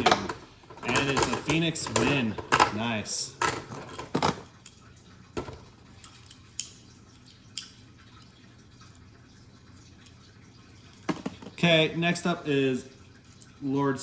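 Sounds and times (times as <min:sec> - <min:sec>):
plastic tops clicking: 0:00.0 - 0:04.5, 0:05.4 - 0:05.8, 0:11.0 - 0:11.6.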